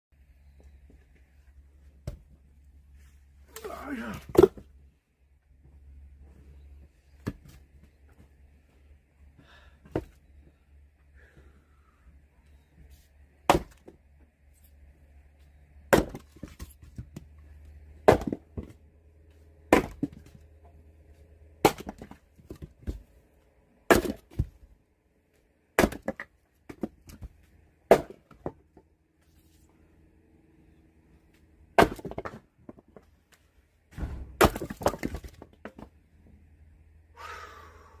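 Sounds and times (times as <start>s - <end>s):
axe chopping wood: 3.6s - 4.7s, 13.4s - 14.0s, 15.9s - 17.3s, 18.0s - 18.8s, 19.7s - 20.4s, 21.6s - 23.0s, 23.9s - 24.6s, 25.8s - 27.3s, 27.9s - 28.6s, 31.8s - 32.4s, 34.0s - 35.8s.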